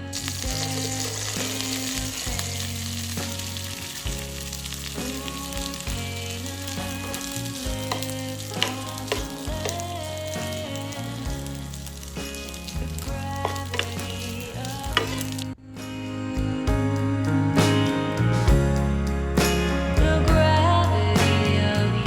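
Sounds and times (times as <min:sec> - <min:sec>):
food sizzling in hot oil: 0:00.0 - 0:15.5
soft background music: 0:00.0 - 0:22.0.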